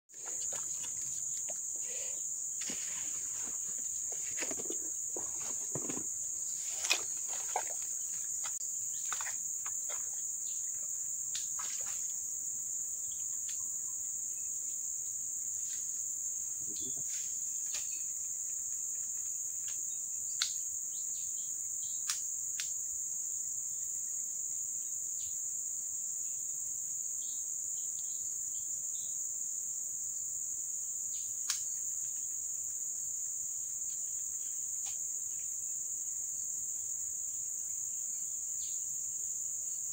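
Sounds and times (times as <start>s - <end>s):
high-pitched insect chorus: 0.1s - 39.9s.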